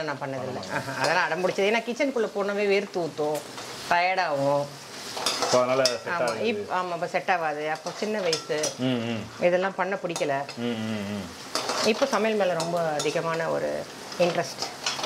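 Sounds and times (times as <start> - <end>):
garlic and onions sizzling in oil: 0.0 - 15.0
spoon scraping pan: 4.9 - 6.6, 7.6 - 8.8, 11.3 - 15.0.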